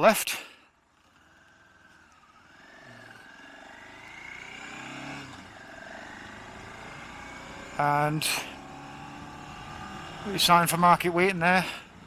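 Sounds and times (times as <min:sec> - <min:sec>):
motorcycle engine pulling away: 0:00.8 - 0:10.4.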